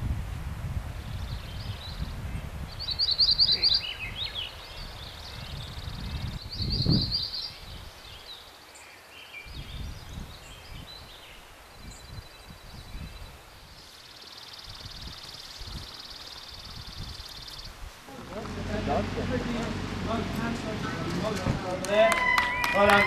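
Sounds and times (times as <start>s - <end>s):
wind rumble on microphone: 0.0s - 8.4s, 9.4s - 13.8s, 14.6s - 23.0s
songbird trills: 2.7s - 17.8s.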